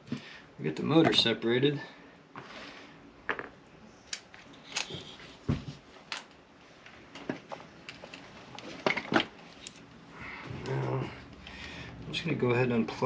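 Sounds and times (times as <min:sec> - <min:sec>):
small clicks and knocks of parts: 0:04.1 - 0:05.1, 0:06.0 - 0:09.9.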